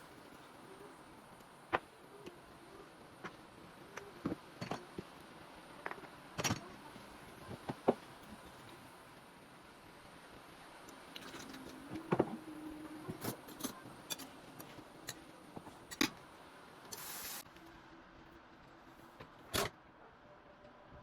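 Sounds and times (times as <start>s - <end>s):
faint steady hum: 0.0s - 21.0s
brief hiss: 16.9s - 17.4s.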